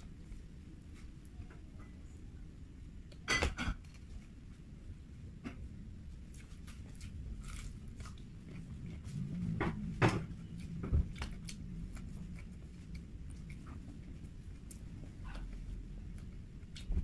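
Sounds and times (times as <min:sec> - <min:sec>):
biting and chewing chicken: 0:06.2 - 0:17.0.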